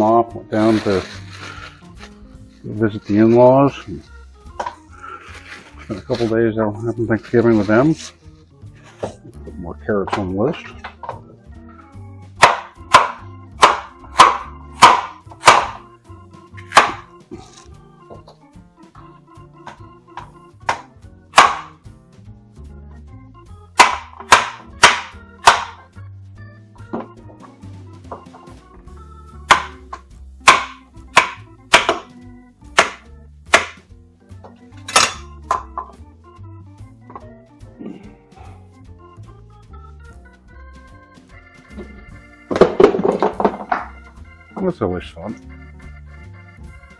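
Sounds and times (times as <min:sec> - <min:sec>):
organ music: 0:00.0 - 0:46.9
knife chopping on cutting board: 0:12.4 - 0:15.8, 0:16.7 - 0:17.6, 0:20.7 - 0:21.7, 0:23.8 - 0:25.8, 0:29.5 - 0:32.1, 0:32.8 - 0:33.8.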